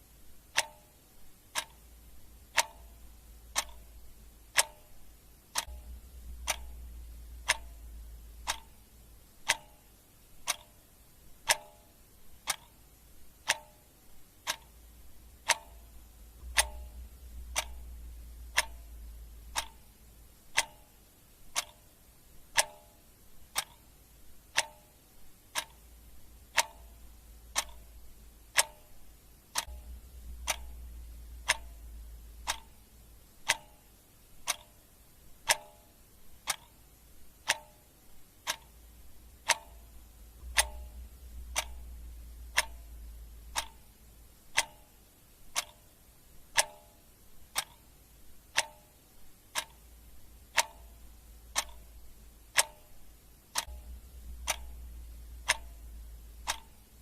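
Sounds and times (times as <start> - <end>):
clock ticking: 0.0 - 57.0
faint low hum: 0.0 - 57.0.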